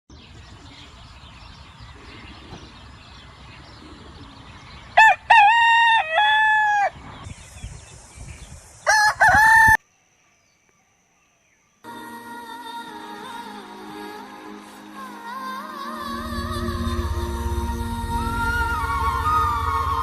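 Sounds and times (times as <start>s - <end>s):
rooster crowing: 5.0s - 7.0s, 8.9s - 9.8s.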